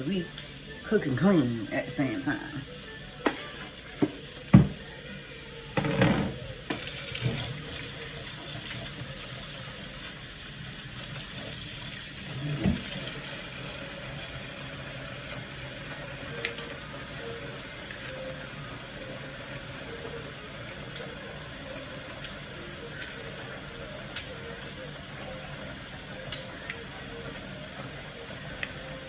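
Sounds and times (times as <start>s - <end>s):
knocks and clatters against sink: 3.2s - 4.8s, 5.8s - 7.5s
tap running into sink: 3.2s - 4.8s, 5.8s - 9.0s, 11.4s - 13.4s.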